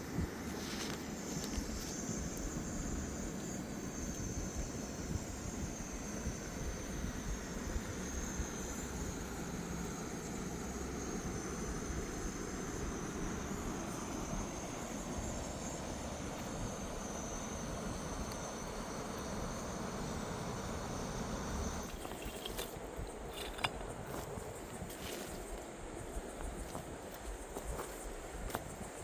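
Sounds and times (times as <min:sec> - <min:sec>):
constant high-pitched whine: 0:00.0 - 0:29.0.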